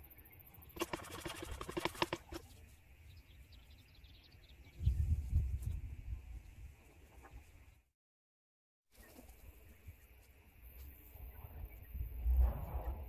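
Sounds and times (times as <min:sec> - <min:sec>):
low rumble: 0:11.2 - 0:13.0.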